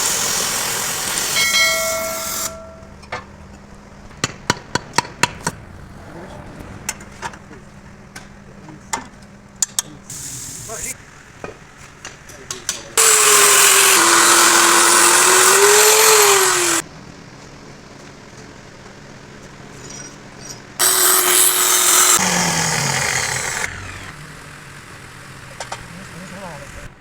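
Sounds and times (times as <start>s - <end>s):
power tool grinding: 13.0s - 16.8s, 20.8s - 24.2s.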